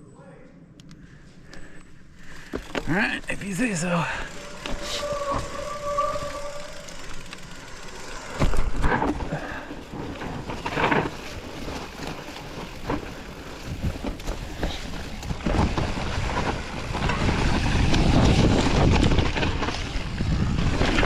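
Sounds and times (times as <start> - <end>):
bike tyres on dirt trail: 1.0 - 21.0
hard jolt of bike: 4.2 - 21.0
bike knocks and rattles: 4.3 - 21.0
wind buffeting microphone: 10.0 - 21.0.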